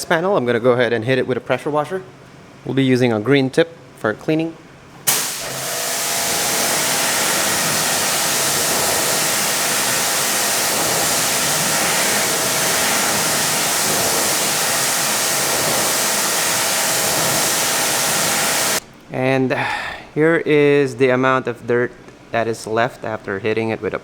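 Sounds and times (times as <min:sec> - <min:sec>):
pressure washer water hiss: 0:05.1 - 0:18.8.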